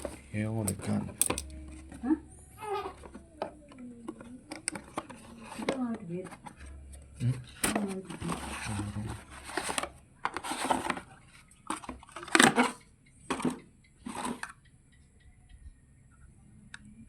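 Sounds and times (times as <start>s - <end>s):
packaging rustling and crinkling: 4.2s - 12.6s.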